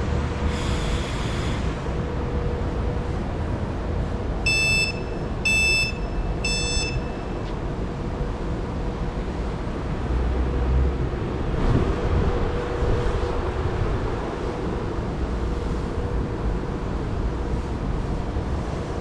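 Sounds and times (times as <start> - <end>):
train rumbling and humming: 0.0 - 19.0
high electronic warning beeps: 4.4 - 7.4.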